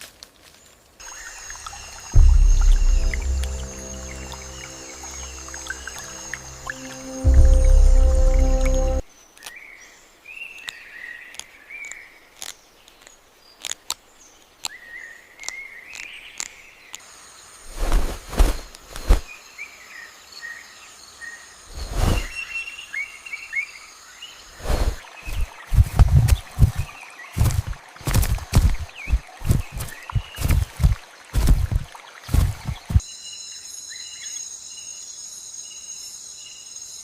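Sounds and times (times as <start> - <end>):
birds chirping: 1.0 - 9.0, 24.3 - 33.0
high insect hum: 1.0 - 9.0, 17.0 - 37.0
loud thuds or rustles: 17.7 - 19.3, 24.7 - 33.0.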